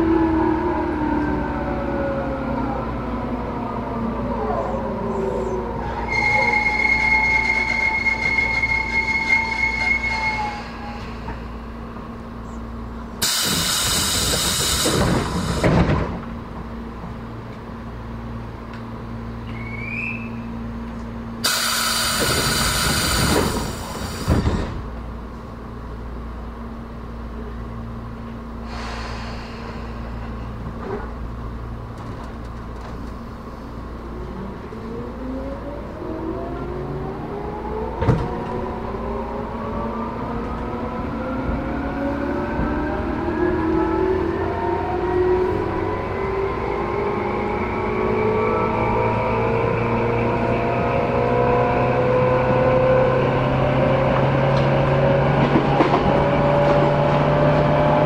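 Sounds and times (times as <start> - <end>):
train door hiss: 13.2 - 16.2, 21.4 - 24.8, 28.6 - 30.6.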